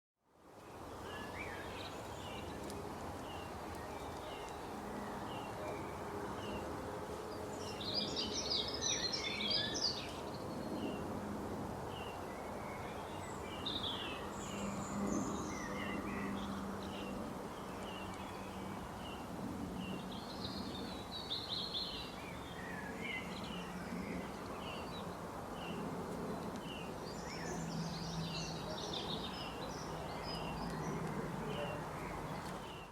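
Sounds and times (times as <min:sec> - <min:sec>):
songbirds chirping: 0:00.3 - 0:32.9.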